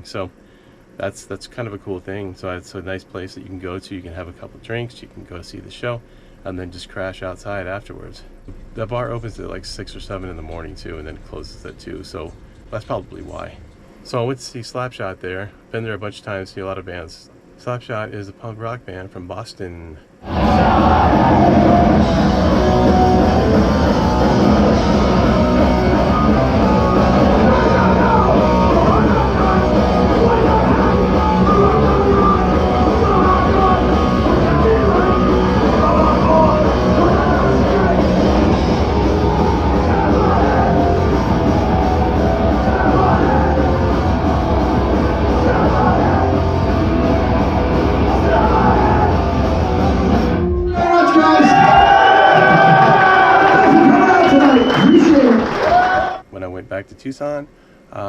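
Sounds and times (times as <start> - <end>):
punk band playing live: 20.3 - 54.3.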